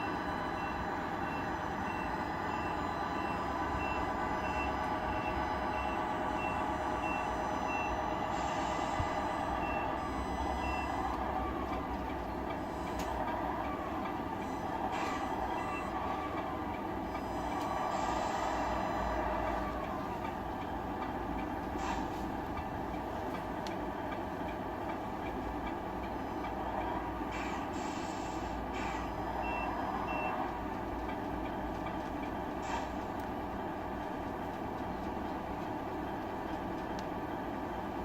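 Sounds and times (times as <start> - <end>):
diesel truck engine from speaker: 0.0 - 38.0
high beeps: 9.6 - 11.2.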